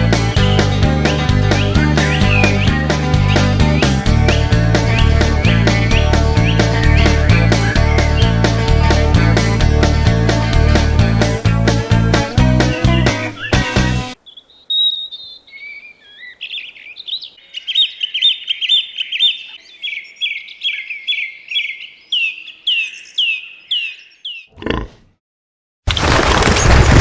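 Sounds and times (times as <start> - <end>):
songbird singing: 0.0 - 9.6, 12.6 - 24.6.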